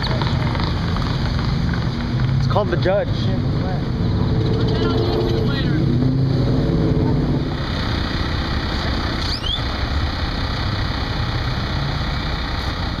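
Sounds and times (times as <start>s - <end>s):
traffic noise: 0.0s - 13.0s
vehicle engine running: 0.0s - 13.0s
rising squeak: 4.2s - 6.1s, 9.2s - 9.7s.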